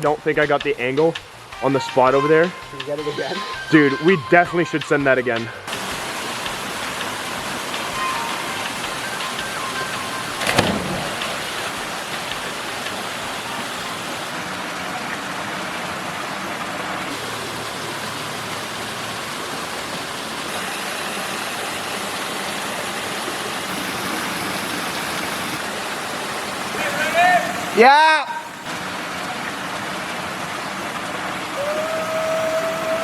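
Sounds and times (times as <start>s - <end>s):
river and waterfall rushing: 5.7s - 33.0s
sharp knock: 10.4s - 11.8s.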